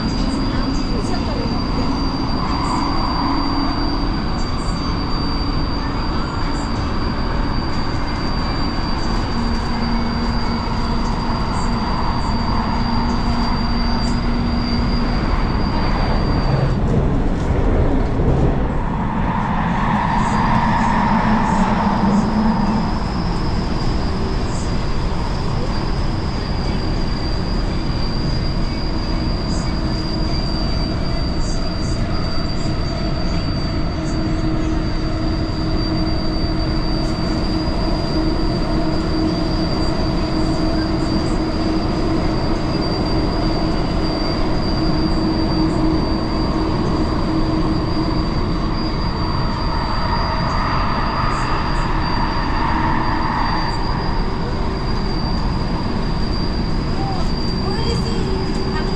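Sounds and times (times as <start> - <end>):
high whine: 0.0 - 58.9
rushing squealing noise: 0.0 - 58.9
train wheels rumbling on rail: 0.0 - 58.9.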